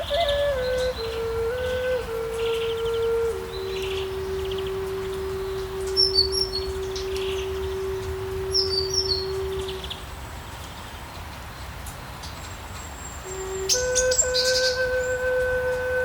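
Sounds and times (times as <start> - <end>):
long low flute note: 0.0 - 10.0, 13.2 - 16.0
forest birds chirping: 0.0 - 16.0.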